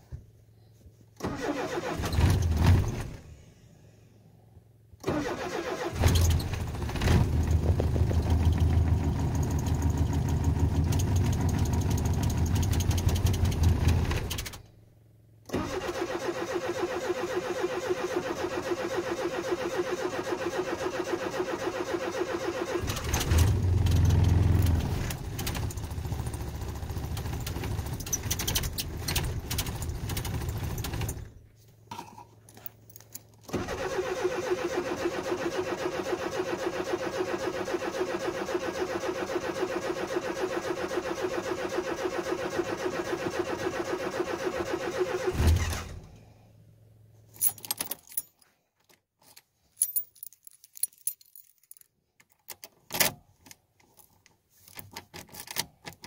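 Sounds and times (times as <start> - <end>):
engine starting and running: 1.2 - 4.1, 5.0 - 14.8, 15.4 - 31.4, 33.4 - 46.6
keys jingling: 47.4 - 48.5, 49.2 - 52.6.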